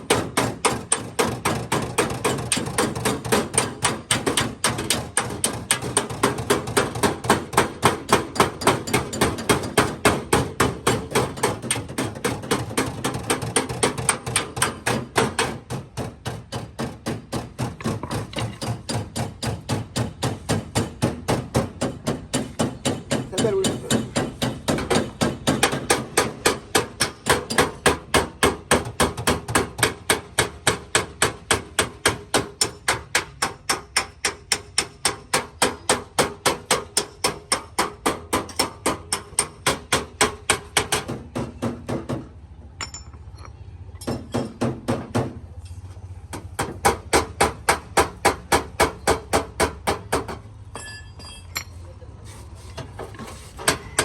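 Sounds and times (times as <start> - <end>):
hammer tapping sheet metal: 0.0 - 43.0.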